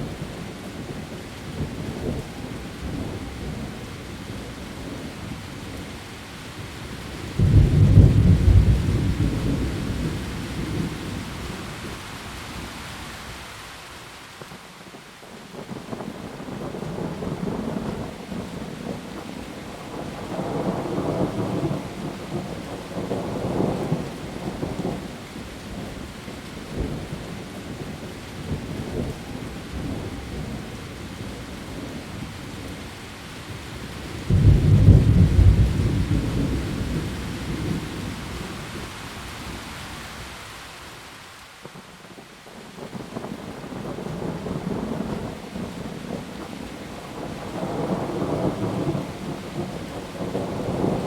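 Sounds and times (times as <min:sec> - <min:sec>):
heavy rain falling: 0:00.0 - 0:51.0
rolling thunder rumbling: 0:07.3 - 0:11.9, 0:34.2 - 0:39.6, 0:42.8 - 0:51.0.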